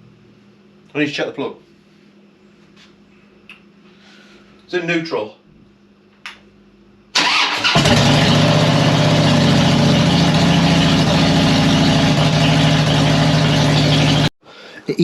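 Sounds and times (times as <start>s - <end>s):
electric starter cranking: 7.2s - 10.9s
motorcycle engine idling: 7.8s - 14.3s.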